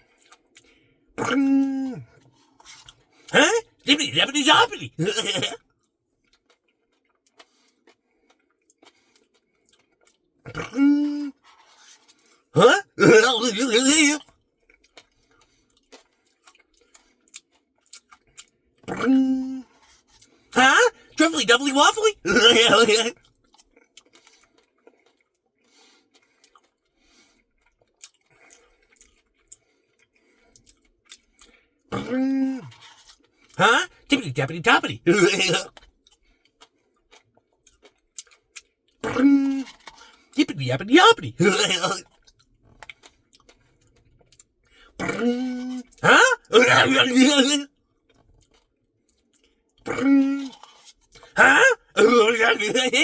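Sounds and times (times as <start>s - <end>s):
faint small clicks and ticks: 5.7s - 10.3s, 14.2s - 18.6s, 23.2s - 31.7s, 35.7s - 38.8s, 42.0s - 44.8s, 47.9s - 49.8s.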